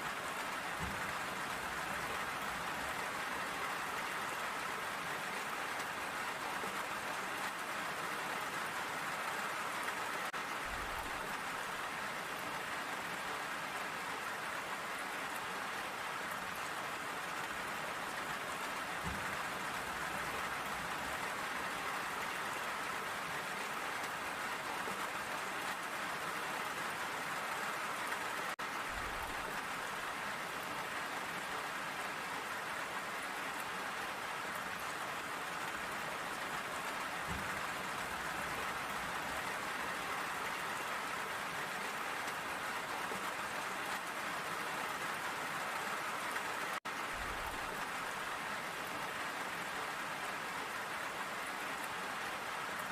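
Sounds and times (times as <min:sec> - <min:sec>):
rain pattering on surfaces: 0:00.0 - 0:52.9.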